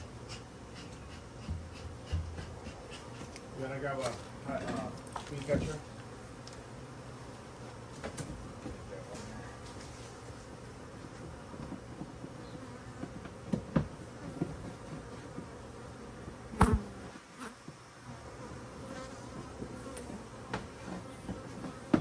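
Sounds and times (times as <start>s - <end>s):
bees buzzing: 5.7s - 22.0s.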